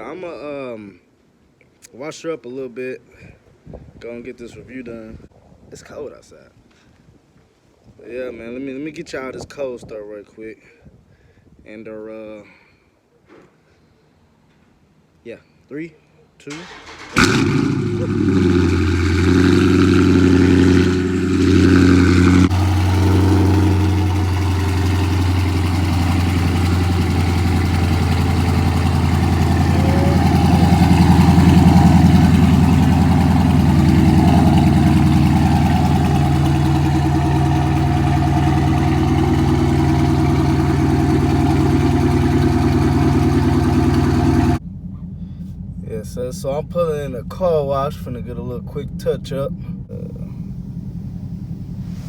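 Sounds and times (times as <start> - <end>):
car engine idling: 16.6 - 52.0.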